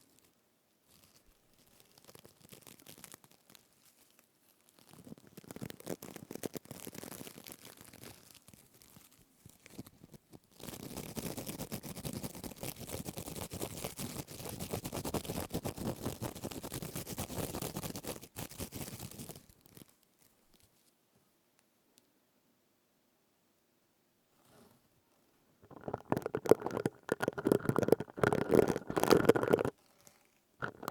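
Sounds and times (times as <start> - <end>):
plastic scourer crackling: 25.6 - 29.7, 30.6 - 30.9.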